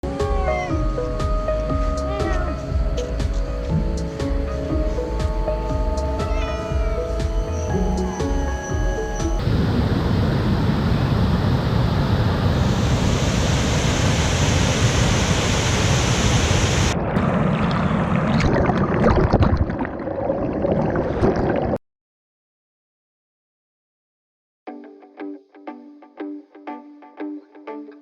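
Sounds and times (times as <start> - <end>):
waterfall roar: 9.4 - 18.3.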